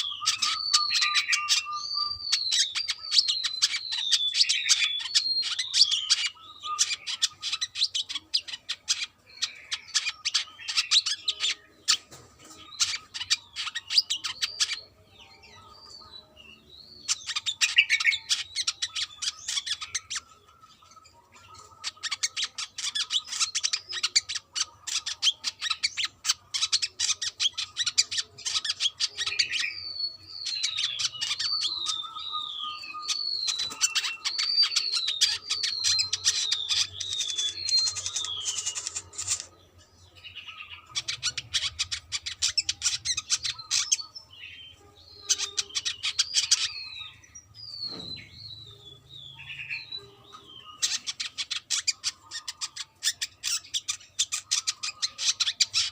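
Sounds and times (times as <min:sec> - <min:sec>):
bird chattering twitter: 0:00.0 - 0:55.9
bird whistled notes: 0:28.6 - 0:39.4.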